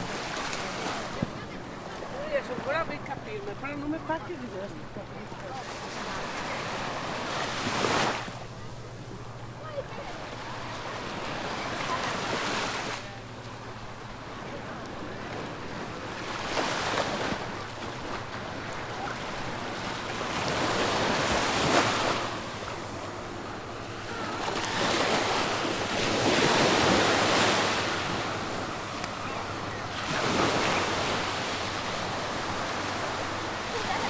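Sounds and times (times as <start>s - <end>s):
small waves breaking on sand: 0.0s - 34.0s.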